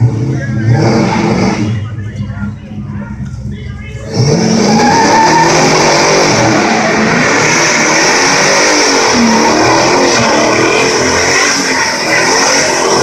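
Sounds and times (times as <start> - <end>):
car engine revving: 0.0 - 13.0
tires squealing on pavement: 0.6 - 1.7, 4.1 - 13.0.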